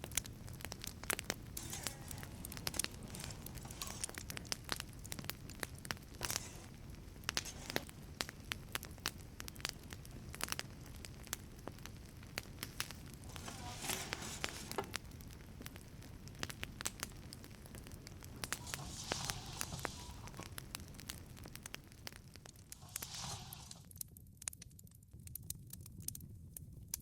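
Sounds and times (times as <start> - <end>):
low fire rumble: 0.0 - 27.0
wood fire crackling and popping: 0.0 - 27.0
brief hiss: 18.5 - 20.6, 22.8 - 23.8.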